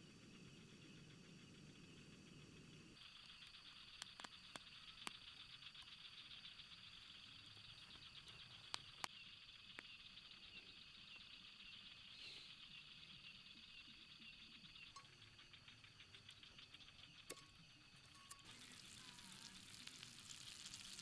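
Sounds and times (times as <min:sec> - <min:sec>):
insects chorus: 0:00.0 - 0:21.0
sharp clicks: 0:03.0 - 0:06.0, 0:07.9 - 0:09.9.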